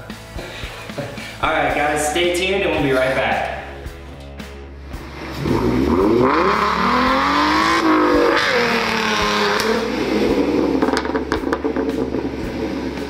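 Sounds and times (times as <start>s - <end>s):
car engine revving: 3.7s - 13.0s.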